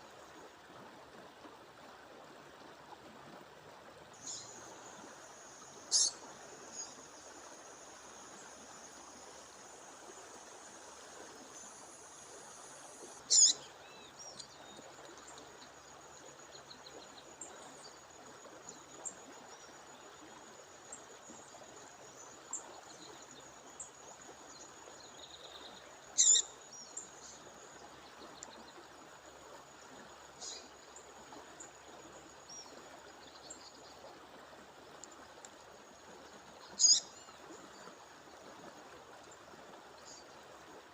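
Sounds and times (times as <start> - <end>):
songbird high call notes: 5.9 - 6.9, 13.3 - 14.5, 26.2 - 26.5, 36.8 - 37.2.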